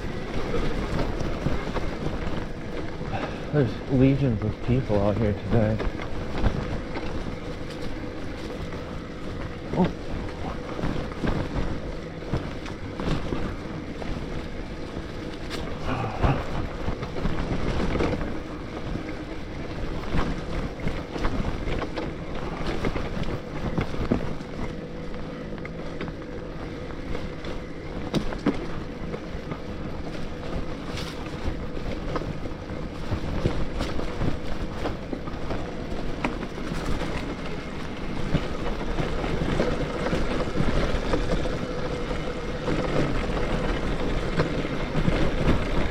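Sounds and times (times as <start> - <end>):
bike knocks and rattles: 0.0 - 45.9
electric bike motor whine: 0.0 - 45.9.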